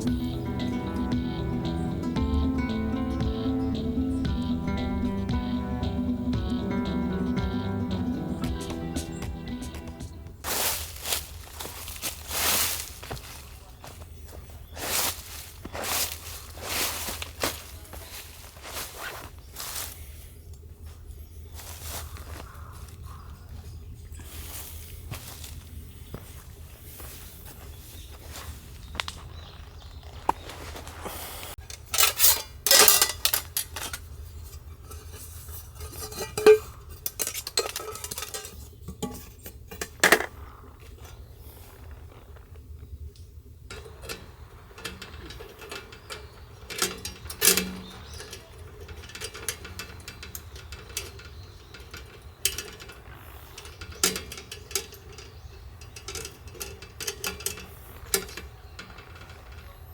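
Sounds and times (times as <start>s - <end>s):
metal cookware clinking and knocking: 31.6s - 40.4s, 43.7s - 59.9s.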